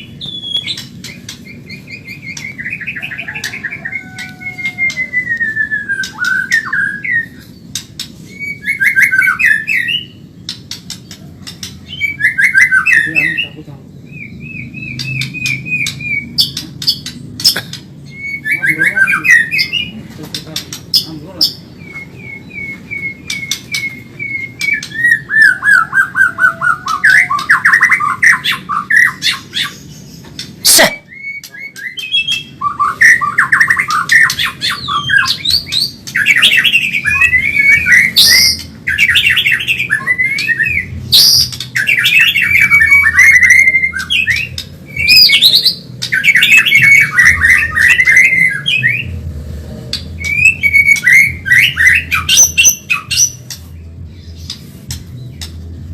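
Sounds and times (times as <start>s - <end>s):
songbird warbling: 0.0s - 49.1s
sharp bird clicking notes: 7.7s - 8.2s, 10.4s - 11.8s, 14.9s - 17.9s.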